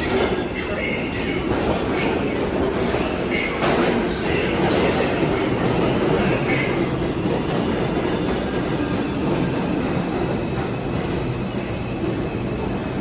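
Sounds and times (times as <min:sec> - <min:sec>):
subway train rumbling on rails: 0:00.0 - 0:13.0
faint high wheel squeal: 0:08.2 - 0:09.3.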